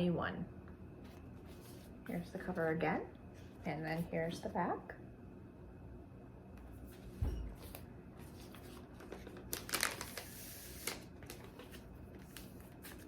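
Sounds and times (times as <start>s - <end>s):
paper rustling and crinkling: 6.8s - 13.0s.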